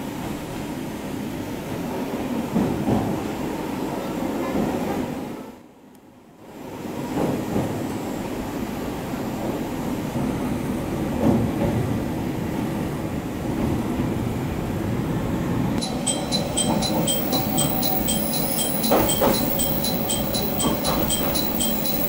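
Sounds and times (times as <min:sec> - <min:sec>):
train engine and wheels rumbling: 0:06.6 - 0:22.0
level-crossing bell ringing: 0:15.8 - 0:22.0.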